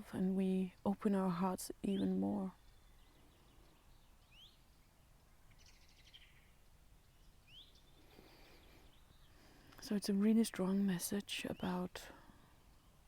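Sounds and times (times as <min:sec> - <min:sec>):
bird trill: 0:05.5 - 0:09.4.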